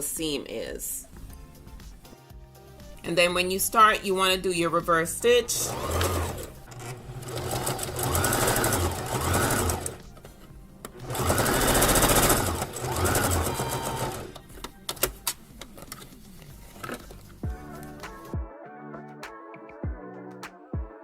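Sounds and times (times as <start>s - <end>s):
sewing machine stitching: 5.3s - 10.2s, 11.0s - 14.4s.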